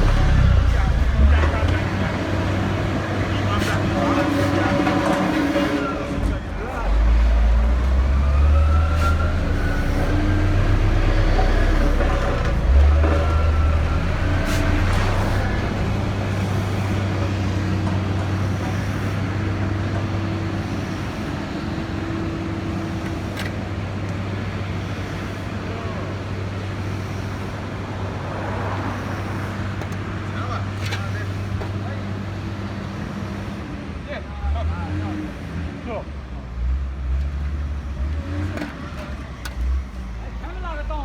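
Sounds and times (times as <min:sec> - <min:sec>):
heavy low rumble: 0:00.0 - 0:05.2
engine running steadily: 0:00.0 - 0:41.0.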